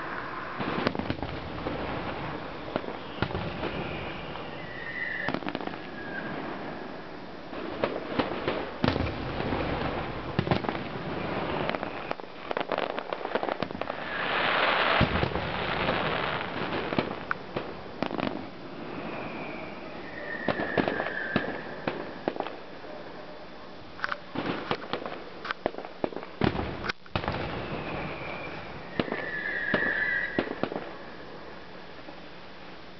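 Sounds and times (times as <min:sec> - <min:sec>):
fireworks bangs: 0:00.0 - 0:22.8, 0:24.3 - 0:31.4
hissing crackle: 0:00.0 - 0:32.9
falling whistle: 0:02.9 - 0:06.5, 0:19.0 - 0:21.8, 0:27.5 - 0:30.6.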